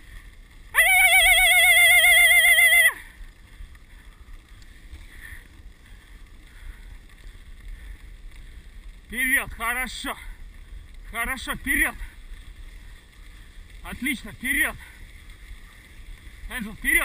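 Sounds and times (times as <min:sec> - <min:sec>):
low quiet rushing: 0:00.0 - 0:17.0
high warbling whistle: 0:00.8 - 0:03.0.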